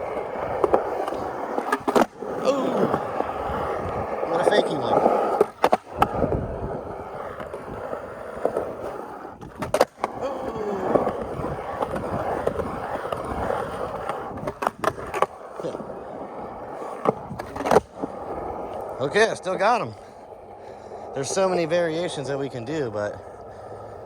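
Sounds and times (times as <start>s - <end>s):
skateboard tail popping and landing: 0.0s - 19.0s
skateboard rolling: 0.0s - 24.0s.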